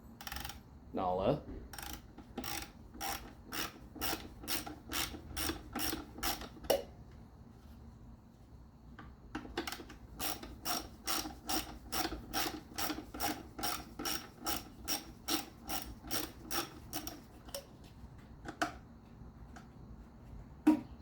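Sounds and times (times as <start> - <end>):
ratchet wrench clicking: 0.2 - 0.6, 1.8 - 6.6, 9.4 - 17.6.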